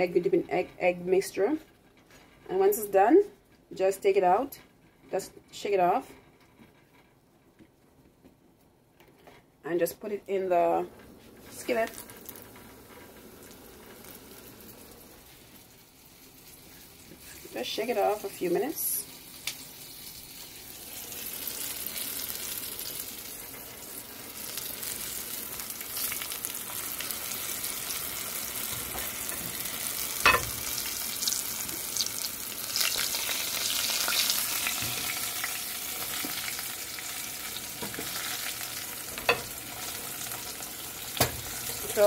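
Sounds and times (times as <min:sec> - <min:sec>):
batter frying in oil: 0:10.0 - 0:42.0.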